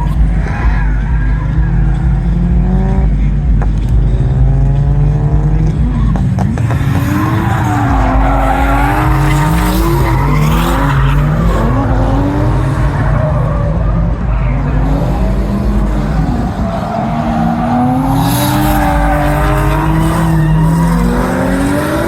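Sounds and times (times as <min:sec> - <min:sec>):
car engine revving: 0:00.0 - 0:22.0
tyres squealing: 0:00.0 - 0:22.0.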